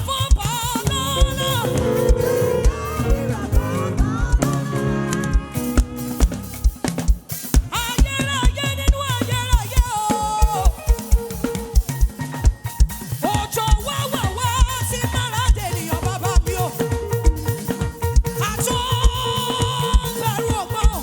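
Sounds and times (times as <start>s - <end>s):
drum kit beat: 0.0s - 21.0s
live band music: 0.0s - 21.0s
wavering melodic lead line: 0.7s - 7.4s.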